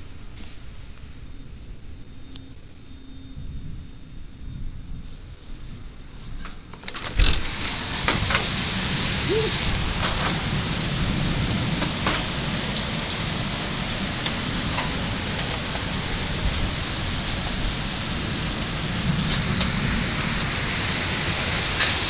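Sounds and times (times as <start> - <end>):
hail hissing: 7.1 - 22.0.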